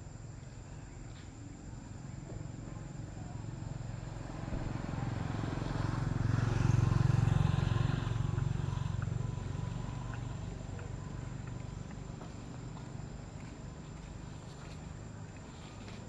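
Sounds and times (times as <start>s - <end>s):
motor vehicle passing by: 3.8s - 12.5s.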